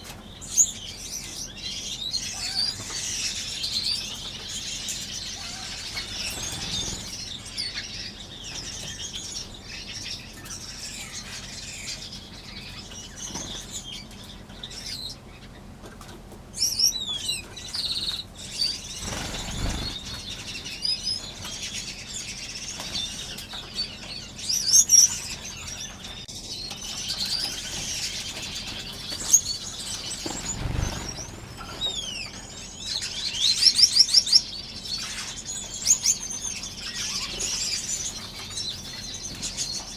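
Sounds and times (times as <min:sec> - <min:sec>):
finches chirping: 0:00.4 - 0:15.1, 0:16.6 - 0:39.9
wings fluttering: 0:05.4 - 0:07.7, 0:18.6 - 0:21.8, 0:27.5 - 0:33.2.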